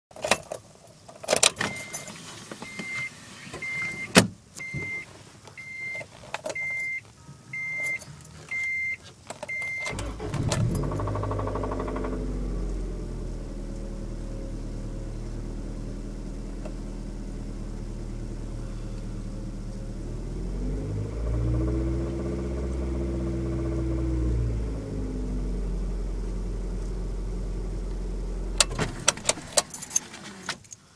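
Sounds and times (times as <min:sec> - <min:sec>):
key and interior clicks: 0:00.2 - 0:02.1, 0:06.0 - 0:11.7, 0:28.6 - 0:30.8
car engine cranking and idling: 0:00.2 - 0:30.9
car dashboard chime beeping: 0:01.6 - 0:06.0, 0:06.6 - 0:11.6
engine revving: 0:09.9 - 0:30.5.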